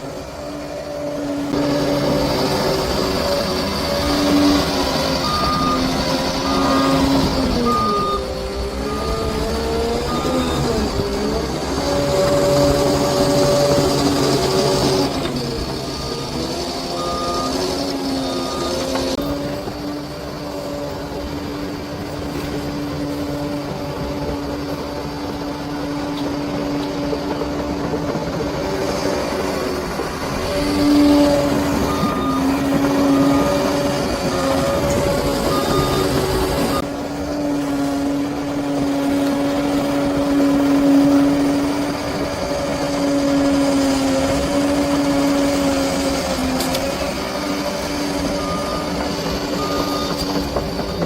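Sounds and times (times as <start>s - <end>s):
bulldozer diesel engine: 0.0s - 51.0s
reverse alarm beeping: 1.5s - 19.6s, 30.4s - 36.9s, 47.5s - 51.0s.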